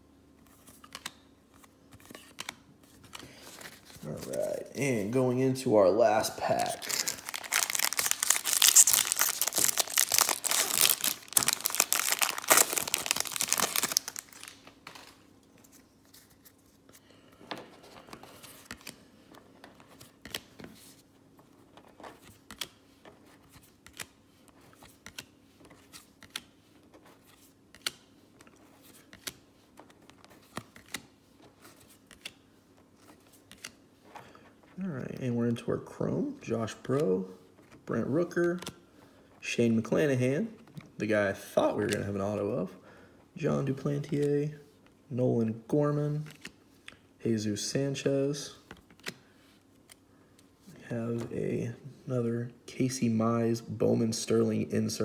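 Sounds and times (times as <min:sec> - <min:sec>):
cards being handled: 0:00.4 - 0:34.8, 0:41.7 - 0:42.4, 0:48.6 - 0:51.4
wrapper tearing and crinkling: 0:06.2 - 0:15.2.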